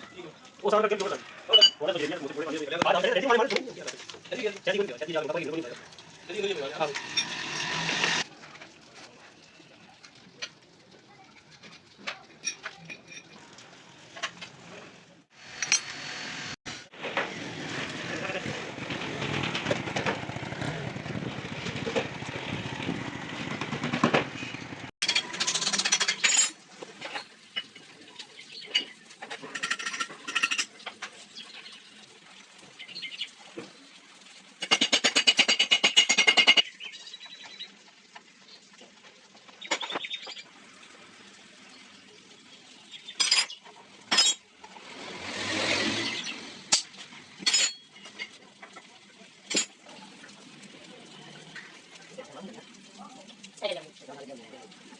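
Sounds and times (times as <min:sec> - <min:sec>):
metal parts and tools clinking: 0:12.1 - 0:13.4, 0:15.6 - 0:16.0, 0:25.0 - 0:27.3, 0:28.8 - 0:30.8, 0:43.2 - 0:44.4, 0:46.7 - 0:48.4.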